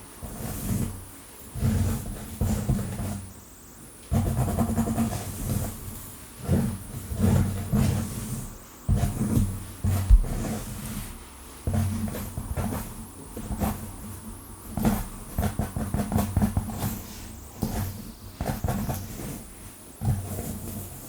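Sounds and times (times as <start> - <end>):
dull rubbing thumps: 8.9 - 11.1
fingernails scratching through hair: 14.8 - 21.0.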